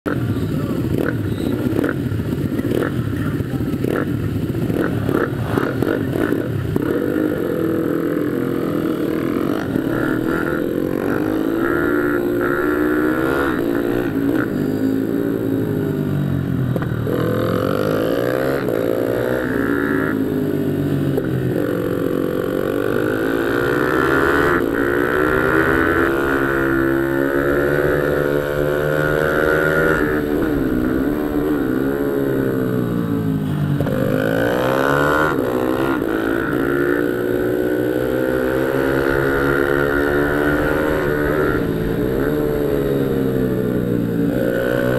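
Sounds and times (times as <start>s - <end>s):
pit bike engine revving: 0.1s - 44.9s.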